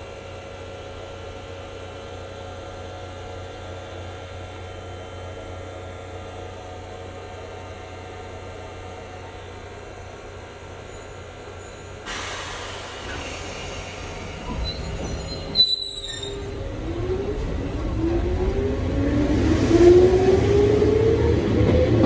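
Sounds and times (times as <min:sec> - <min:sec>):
train running over rails: 0:00.3 - 0:22.0
train motor whine rising: 0:10.9 - 0:21.9.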